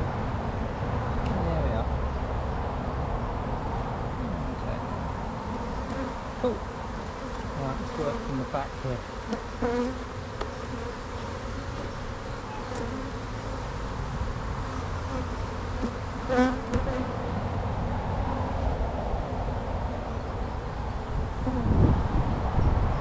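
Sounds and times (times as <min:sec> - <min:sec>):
hum of bee colony: 0:00.0 - 0:21.9
single bees buzzing close by: 0:04.1 - 0:18.3, 0:19.9 - 0:21.9.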